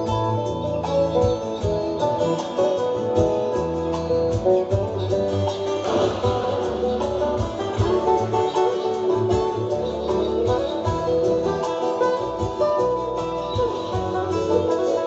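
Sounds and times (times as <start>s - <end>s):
plucked acoustic guitar: 0.0s - 15.0s
pulsing low bass line: 3.2s - 8.5s.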